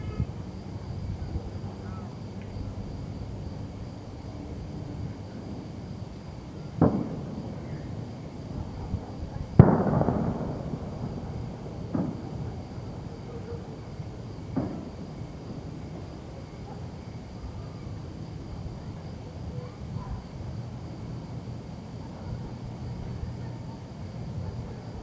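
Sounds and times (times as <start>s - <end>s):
rumble after bang: 6.8s - 7.6s, 9.6s - 12.7s
fireworks bangs: 6.8s - 16.2s.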